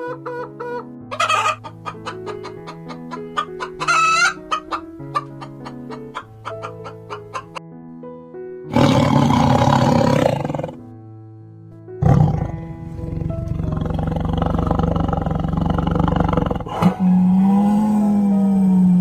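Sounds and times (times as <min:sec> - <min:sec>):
background music: 0:00.0 - 0:19.0
large animal roaring: 0:08.7 - 0:10.8, 0:12.0 - 0:19.0.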